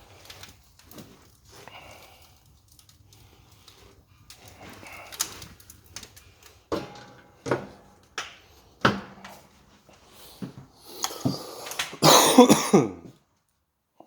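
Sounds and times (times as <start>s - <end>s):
metallic knocks and clanks: 6.7s - 9.4s.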